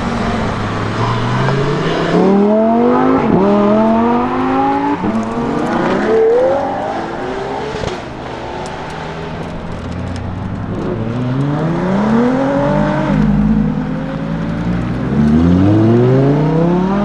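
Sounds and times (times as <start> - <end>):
gear upshifts: 0.0 - 17.0
sports car engine accelerating: 0.0 - 17.0.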